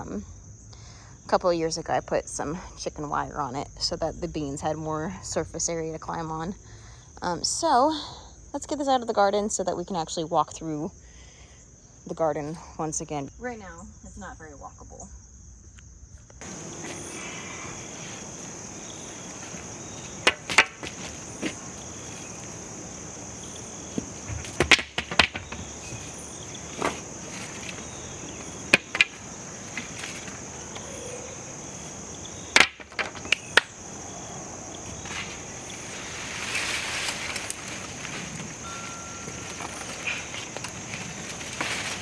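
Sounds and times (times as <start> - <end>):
crickets chirping: 16.4 - 42.0
metal trellis clanking: 16.4 - 42.0
rustling: 16.4 - 42.0.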